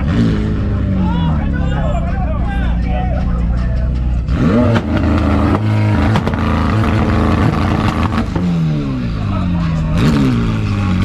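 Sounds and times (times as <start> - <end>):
car engine revving hard: 0.0 - 1.0, 4.2 - 11.0.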